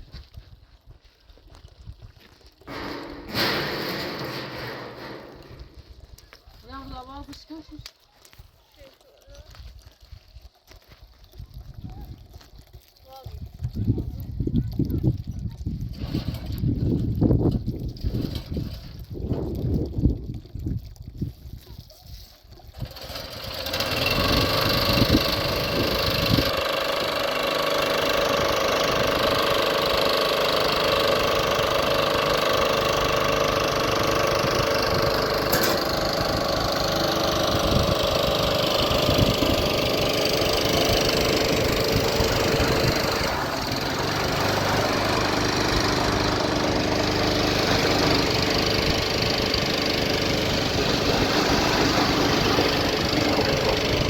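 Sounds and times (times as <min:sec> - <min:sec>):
engine starting and running: 0:02.7 - 0:06.0, 0:15.9 - 0:19.6, 0:22.7 - 0:54.0.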